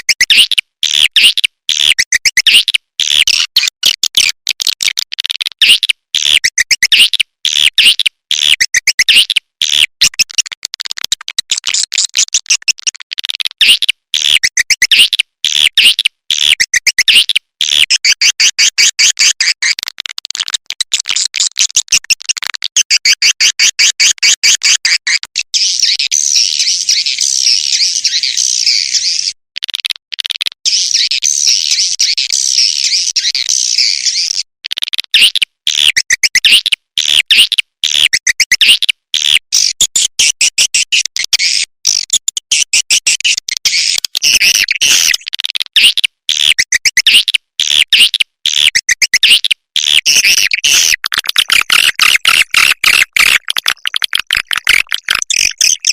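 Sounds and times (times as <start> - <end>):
rapid buzzing clicks: 50.0 - 55.9.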